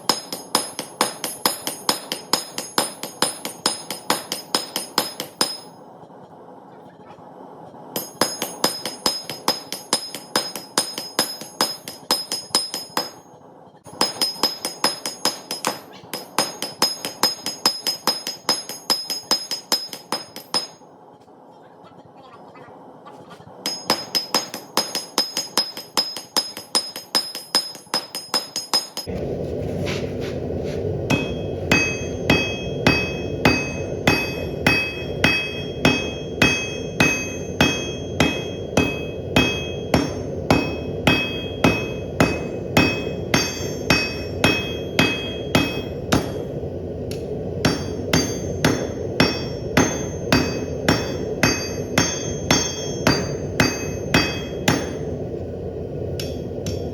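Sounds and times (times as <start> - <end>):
hammer striking steel on anvil: 0.0 - 5.8, 8.0 - 13.3, 13.9 - 20.9, 23.6 - 29.2, 31.1 - 55.2, 56.2 - 56.9
steady rushing noise: 23.5 - 56.9.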